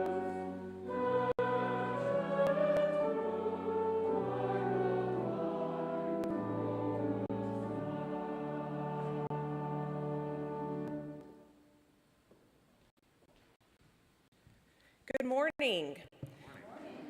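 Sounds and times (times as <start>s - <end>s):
brass quintet playing chorale: 0.0s - 11.3s.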